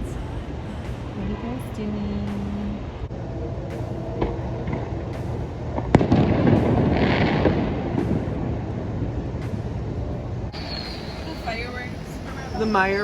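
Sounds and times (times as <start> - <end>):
firework crackling: 4.2 - 9.1, 10.6 - 13.0
firework bang: 5.9 - 8.6.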